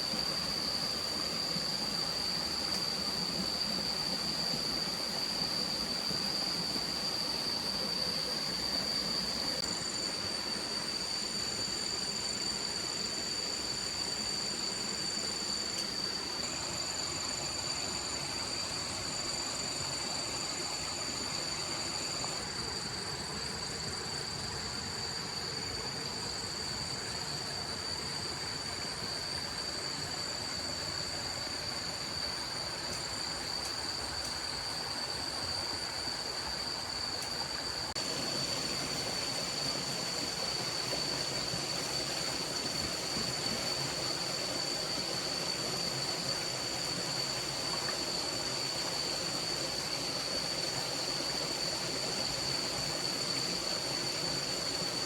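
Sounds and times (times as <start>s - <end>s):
constant high-pitched tone: 0.0s - 55.0s
stream water rushing: 27.7s - 55.0s.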